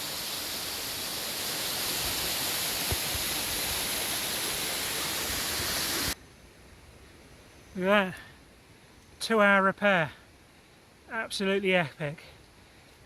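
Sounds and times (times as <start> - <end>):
waterfall rushing: 0.0 - 6.2.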